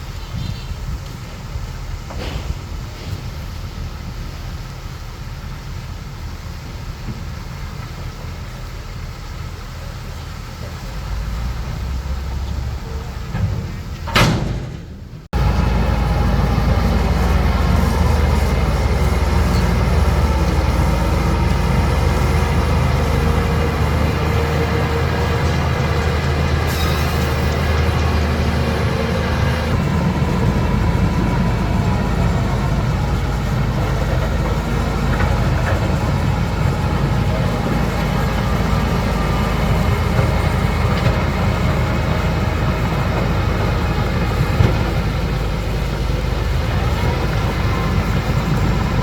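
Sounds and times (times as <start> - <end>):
heavy machinery diesel engine: 0.0 - 49.0
loud burst of noise: 11.4 - 33.8.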